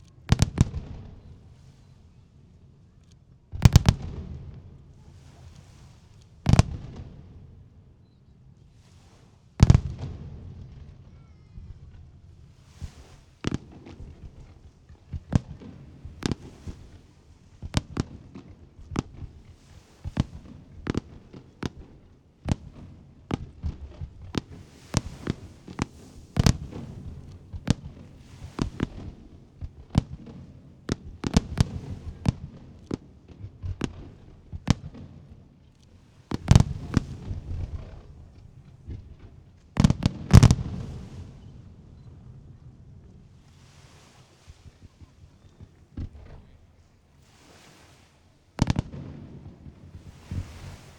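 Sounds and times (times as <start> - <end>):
fireworks bursting: 12.4 - 41.6, 43.4 - 50.9.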